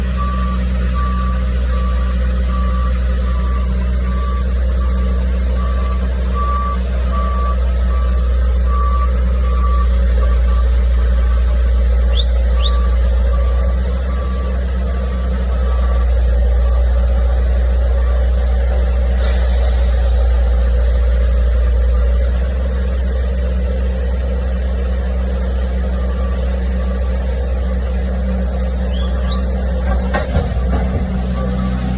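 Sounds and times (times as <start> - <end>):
low engine rumble: 0.0 - 31.9
vehicle reversing alarm beeping: 0.1 - 18.5, 25.6 - 28.0, 28.6 - 31.9.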